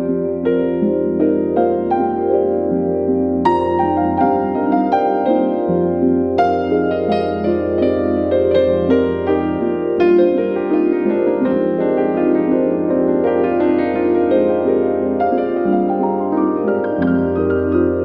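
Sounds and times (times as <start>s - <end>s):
soft piano-like keyboard notes: 0.0s - 18.0s.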